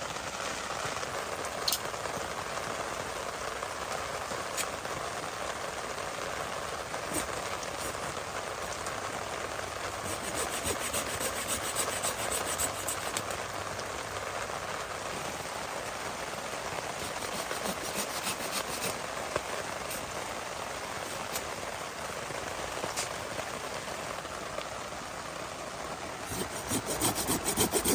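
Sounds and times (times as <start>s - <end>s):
heavy rain falling: 0.0s - 10.2s, 12.8s - 17.2s, 18.1s - 26.3s
hand saw cutting wet wood: 10.0s - 13.3s, 17.0s - 19.0s, 26.3s - 27.9s.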